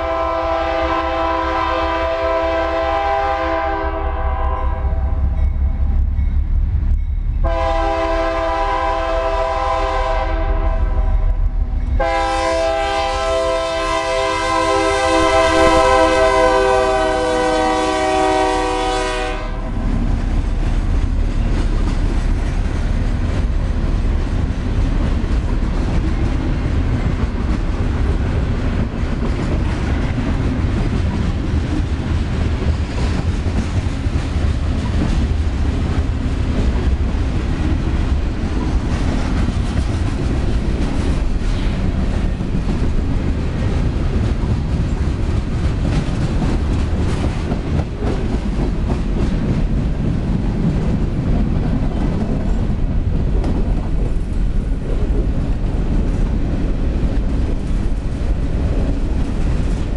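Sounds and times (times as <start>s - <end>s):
freight train cars rolling past: 0.0s - 59.9s.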